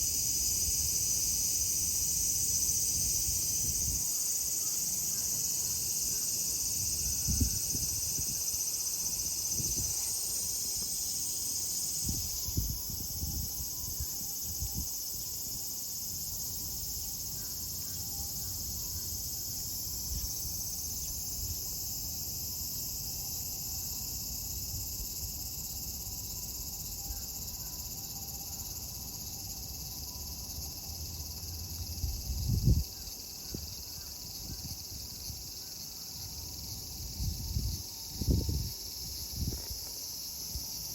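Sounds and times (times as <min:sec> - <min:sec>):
cicadas singing: 0:00.0 - 0:40.9.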